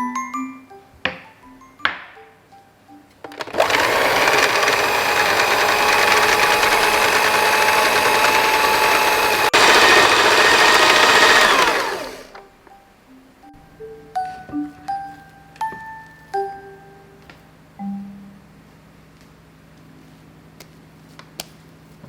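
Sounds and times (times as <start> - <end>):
electric mixer motor running: 3.5 - 12.4.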